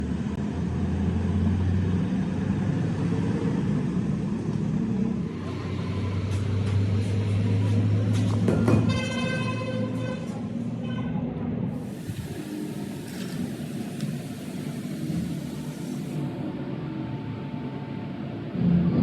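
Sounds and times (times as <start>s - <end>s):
truck engine humming: 11.7s - 17.5s.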